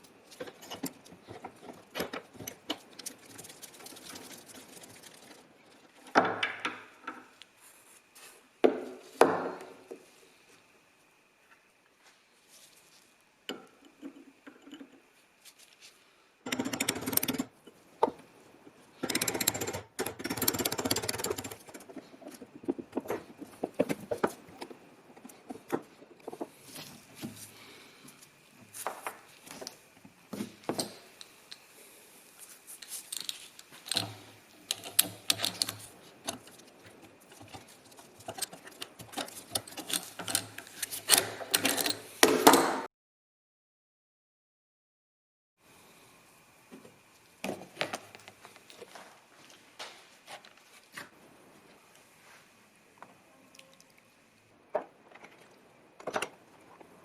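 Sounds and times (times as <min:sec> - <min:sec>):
metal parts clicking: 0:16.5 - 0:17.5, 0:19.0 - 0:22.0, 0:32.8 - 0:42.1.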